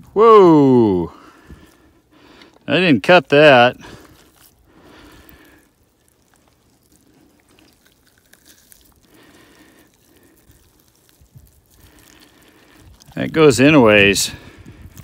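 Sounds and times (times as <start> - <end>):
wet squelching and tearing: 3.8 - 15.0.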